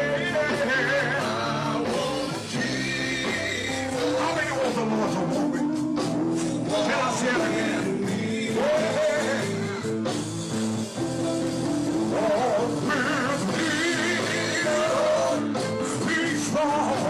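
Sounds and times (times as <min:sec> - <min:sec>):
person singing gospel: 0:00.0 - 0:10.2, 0:11.6 - 0:17.0
band playing chords: 0:00.0 - 0:17.0.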